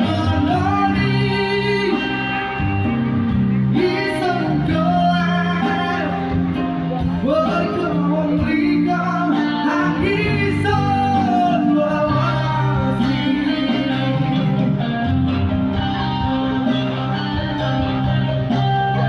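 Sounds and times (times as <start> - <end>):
band music: 0.0 - 19.0
person singing: 0.0 - 19.0.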